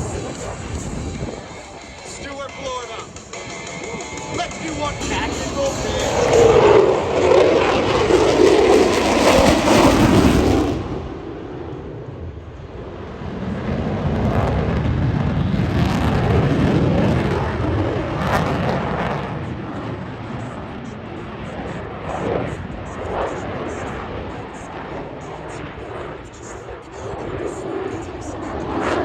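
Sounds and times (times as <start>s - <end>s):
jet roar passing overhead: 0.0s - 29.0s.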